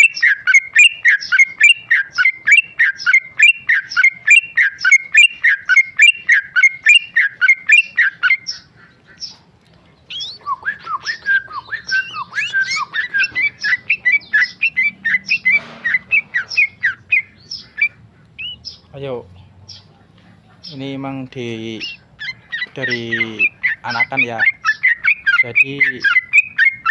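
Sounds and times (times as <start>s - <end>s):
bird singing repeated chirps: 0.0s - 9.4s, 10.1s - 19.0s, 21.6s - 26.9s.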